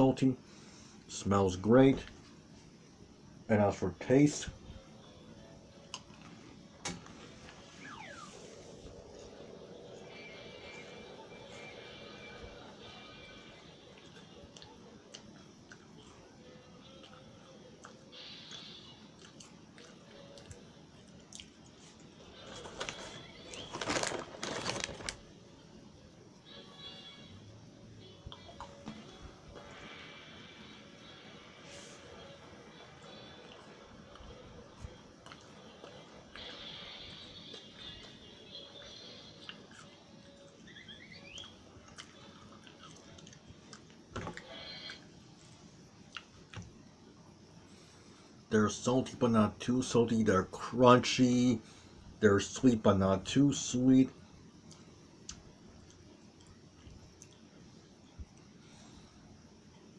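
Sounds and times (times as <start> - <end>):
chewing crisp crackers: 13.9 - 16.3, 16.9 - 25.2, 33.0 - 36.6, 39.3 - 46.8
cracker crunching: 21.3 - 25.3.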